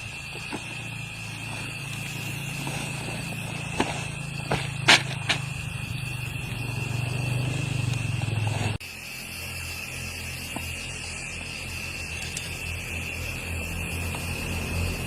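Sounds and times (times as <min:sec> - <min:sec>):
high whine: 0:00.0 - 0:15.0
low motor hum: 0:00.0 - 0:15.0.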